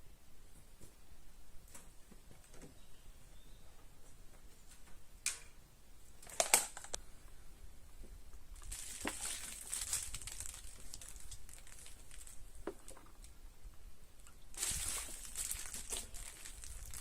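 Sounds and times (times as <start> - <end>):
rustling and crinkling handling: 8.0 - 13.4, 14.5 - 17.0.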